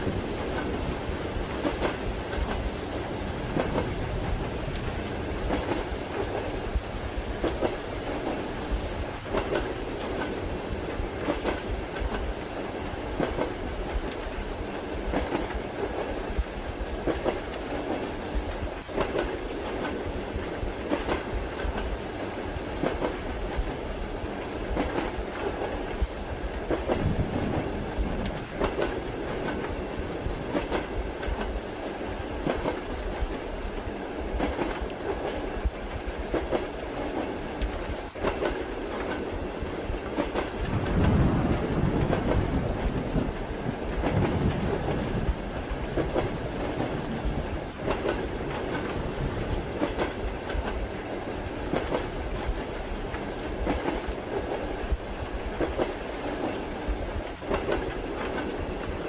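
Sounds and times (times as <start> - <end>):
train running gear rumble: 0.0 - 59.0
wheels clacking over rail joints: 40.0 - 56.6.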